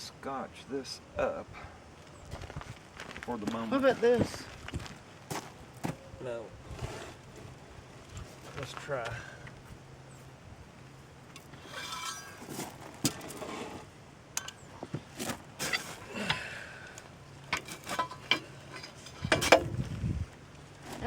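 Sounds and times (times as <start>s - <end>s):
metal and wood knocking and scraping: 11.3s - 16.5s, 17.4s - 19.9s.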